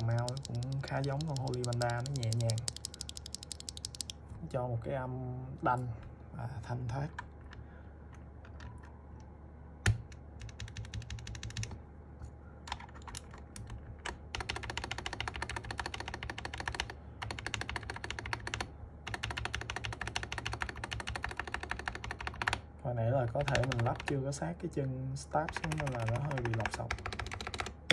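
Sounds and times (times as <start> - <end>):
mechanical keyboard typing: 0.0 - 4.2, 9.8 - 11.8, 12.7 - 22.6, 23.3 - 24.3, 25.5 - 27.9.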